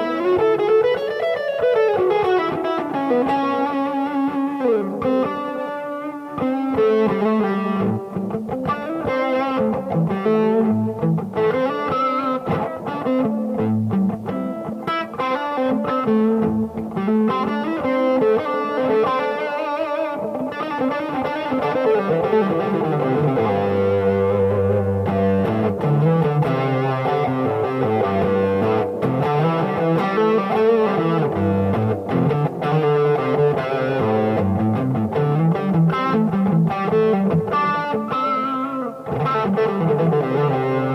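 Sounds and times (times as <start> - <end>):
distorted electric guitar solo: 0.0 - 40.9.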